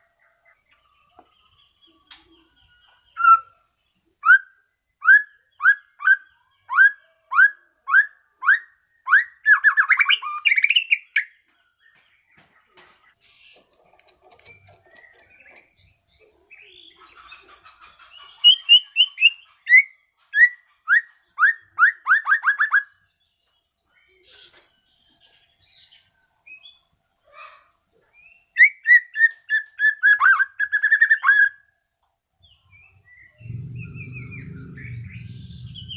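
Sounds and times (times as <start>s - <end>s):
bird singing whistled notes: 0.2s - 11.4s, 18.5s - 23.4s, 28.2s - 31.7s, 32.4s - 35.9s
bird soft warbling: 33.4s - 35.9s.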